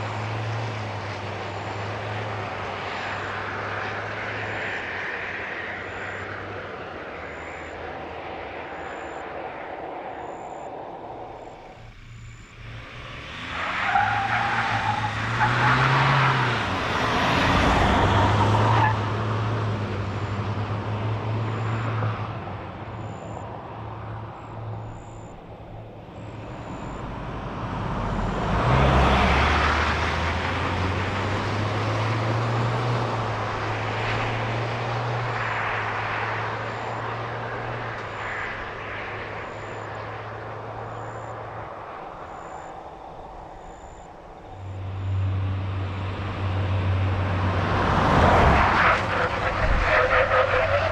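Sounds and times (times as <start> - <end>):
tyre and road noise: 0.0 - 50.9
diesel engine accelerating hard: 11.4 - 50.9.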